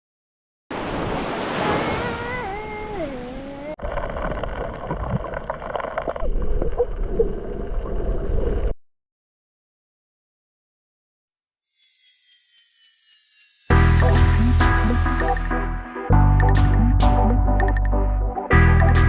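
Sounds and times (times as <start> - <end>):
wavering falling tone: 11.7 - 15.7.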